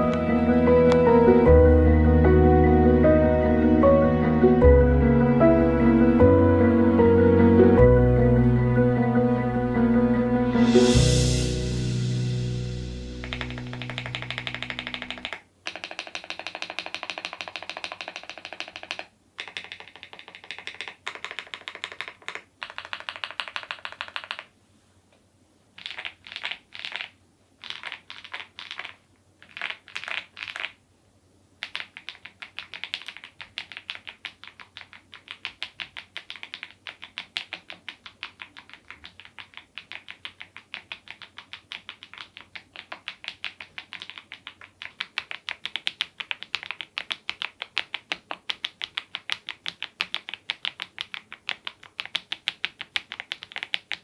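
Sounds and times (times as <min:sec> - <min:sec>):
mechanical keyboard typing: 0:13.2 - 0:24.5, 0:25.8 - 0:30.8, 0:31.6 - 0:54.0.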